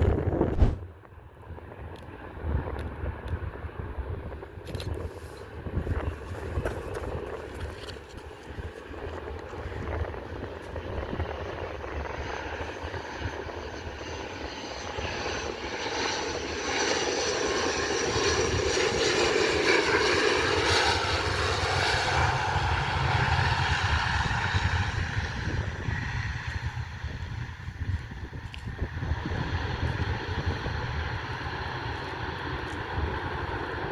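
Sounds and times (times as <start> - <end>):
jet engines roaring: 8.5 - 33.9.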